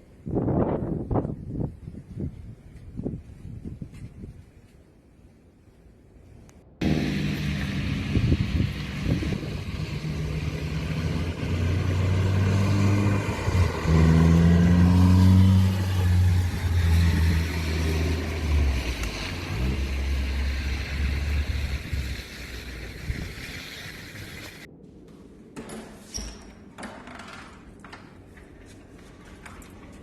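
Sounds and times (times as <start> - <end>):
vehicle engine revving: 6.8 - 24.6.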